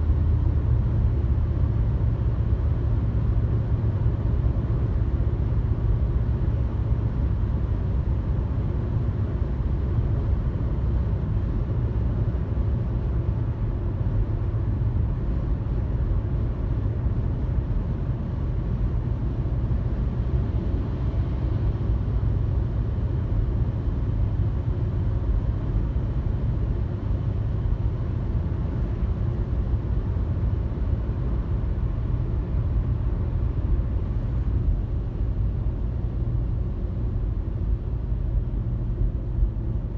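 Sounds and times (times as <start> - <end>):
car cruising on highway: 0.1 - 39.9.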